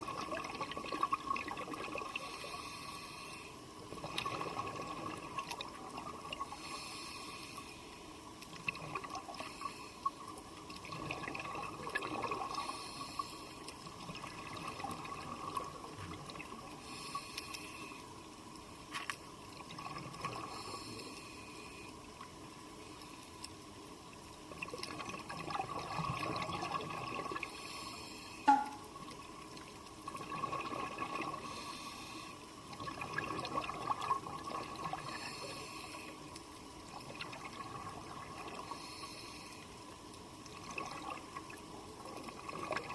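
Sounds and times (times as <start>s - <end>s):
faint steady hum: 0.0s - 42.9s
underwater water hiss: 2.2s - 3.6s, 6.5s - 7.9s, 12.5s - 13.6s, 16.8s - 18.0s, 20.4s - 21.9s, 27.5s - 28.6s, 31.4s - 32.4s, 35.0s - 36.2s, 38.7s - 39.7s.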